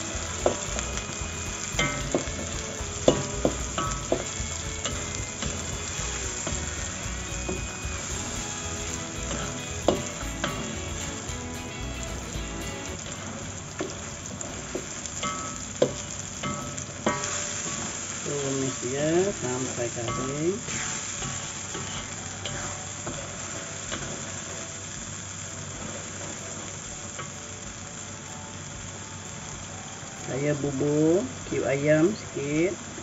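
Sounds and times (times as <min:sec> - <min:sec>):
spatula scraping wok: 0:00.0 - 0:24.7
paste sizzling in a wok: 0:00.0 - 0:33.0
spatula knocking on wok: 0:00.1 - 0:13.0.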